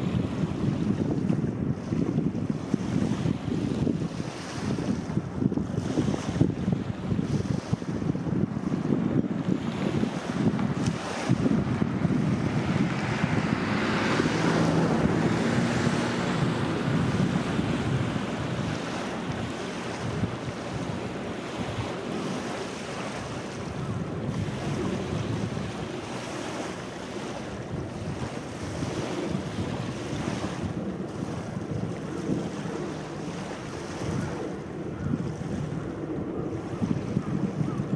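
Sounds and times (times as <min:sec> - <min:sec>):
sea waves washing on shore: 0:00.0 - 0:37.9
wind buffeting microphone: 0:00.0 - 0:37.9.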